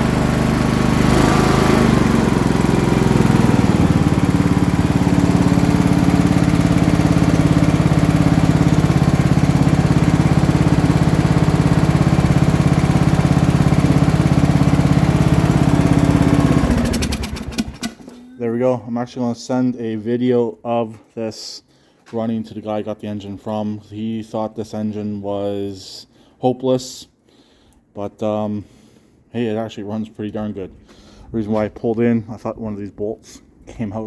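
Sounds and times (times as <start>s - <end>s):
small gasoline engine running: 0.0s - 18.1s.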